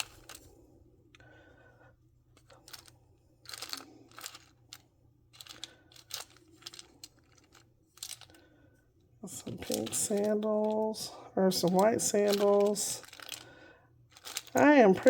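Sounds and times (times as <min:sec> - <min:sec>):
rustling of small plastic items: 0:00.0 - 0:00.6, 0:02.3 - 0:08.5, 0:09.3 - 0:15.0
plastic doll accessories clicking: 0:02.4 - 0:08.4, 0:09.3 - 0:13.5, 0:14.1 - 0:15.0.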